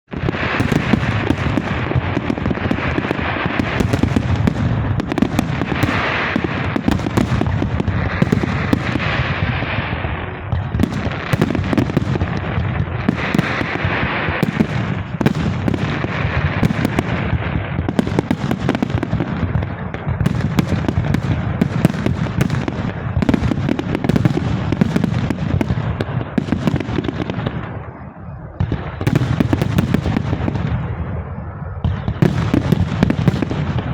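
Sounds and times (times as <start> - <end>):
fireworks bangs and crackling: 0.1 - 33.9.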